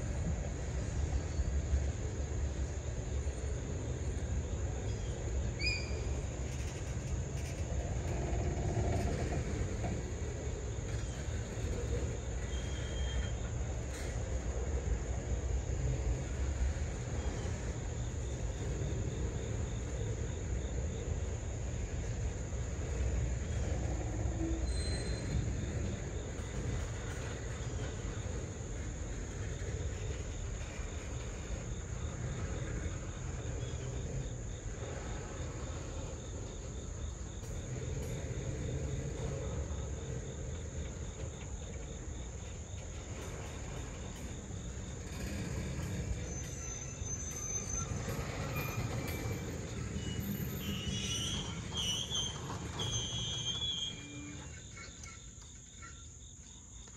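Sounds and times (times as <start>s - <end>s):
train wheels rumbling on rails: 0.0s - 56.9s
insects trilling: 0.1s - 56.9s.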